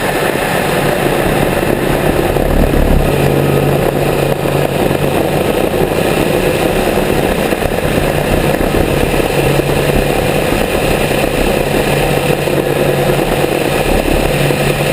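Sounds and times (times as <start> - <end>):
seaplane piston engines running: 0.0 - 14.9.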